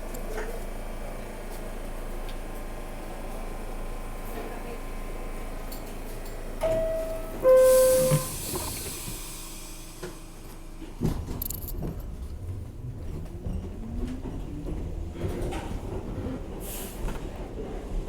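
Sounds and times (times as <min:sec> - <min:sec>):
train rumbling: 0:04.4 - 0:18.0
two-tone door chime: 0:06.6 - 0:08.7
doors closing hiss: 0:07.4 - 0:10.3.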